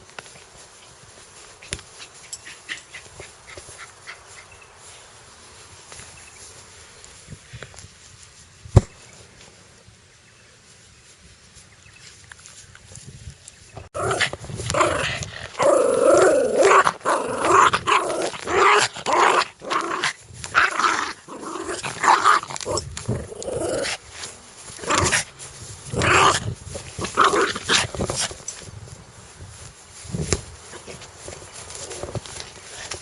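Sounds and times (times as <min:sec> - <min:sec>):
dog growling: 0:14.0 - 0:24.0.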